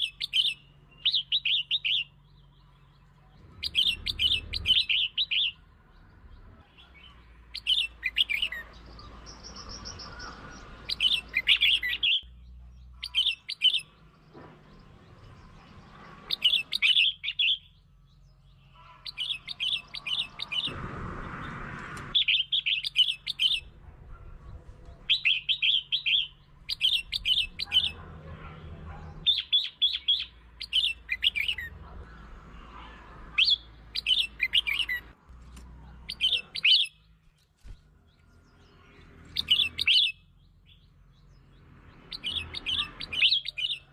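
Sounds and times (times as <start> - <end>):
bird chirping song: 0.0 - 43.9.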